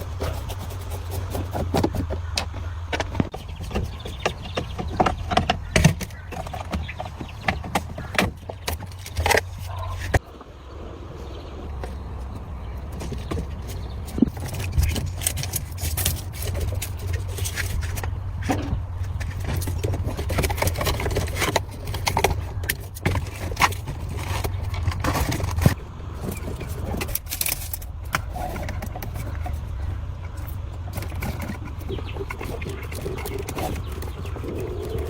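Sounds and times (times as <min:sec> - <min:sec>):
metal tools clinking and scraping: 0:13.0 - 0:35.0.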